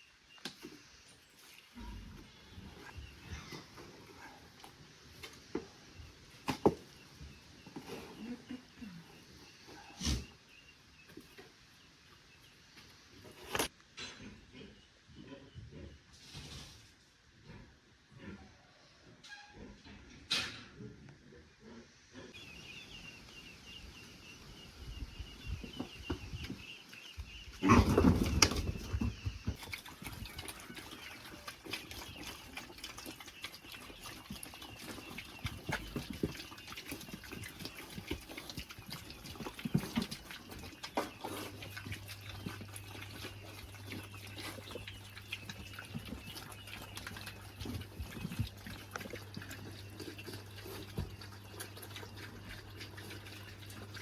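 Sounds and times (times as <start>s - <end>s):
pigs grunting and feeding: 0.0s - 11.5s, 25.2s - 54.0s.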